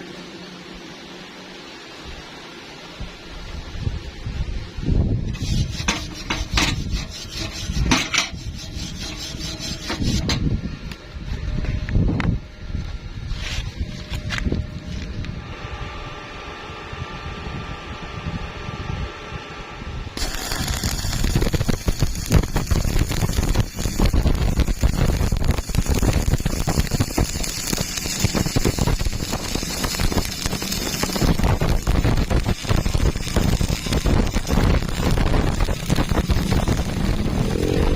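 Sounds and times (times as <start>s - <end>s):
scraping and rubbing strokes: 5.3s - 10.4s, 13.2s - 15.0s
welding arc crackling: 20.2s - 37.9s.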